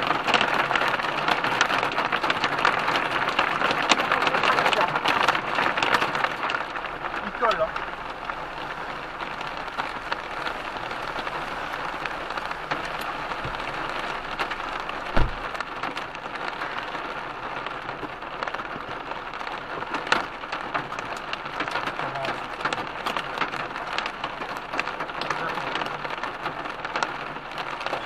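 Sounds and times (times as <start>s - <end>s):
heavy rain pelting a car: 0.0s - 28.0s
heavy thump: 15.1s - 15.5s.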